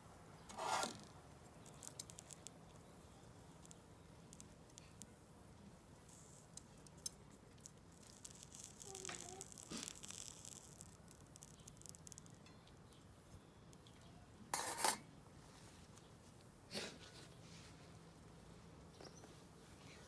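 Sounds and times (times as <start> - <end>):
sizzling and crackling wood fire: 0.0 - 16.7.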